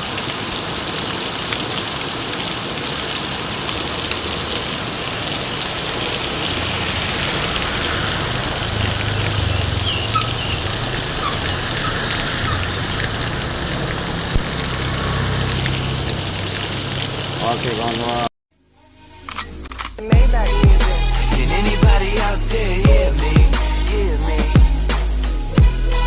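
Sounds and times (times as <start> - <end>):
heavy rain pouring: 0.0 - 18.3
vehicle engine running low: 3.8 - 17.7.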